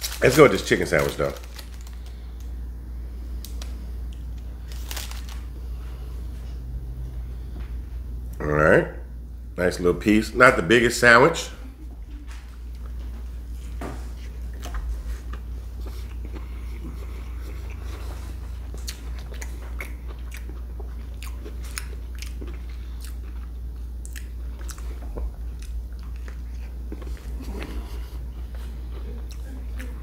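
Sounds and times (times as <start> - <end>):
man chewing crispy sandwich: 0.0 - 2.6, 12.6 - 30.0
steady low hum: 0.0 - 30.0.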